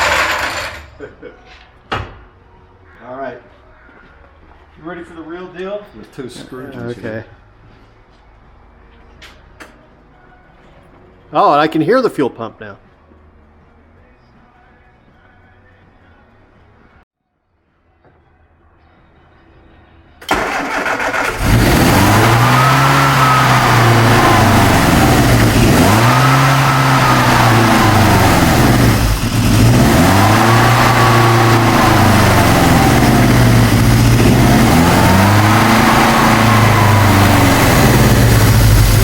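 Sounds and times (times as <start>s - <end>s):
engine cranking: 0.0s - 1.0s, 20.2s - 39.0s
engine idle surging: 20.3s - 39.0s.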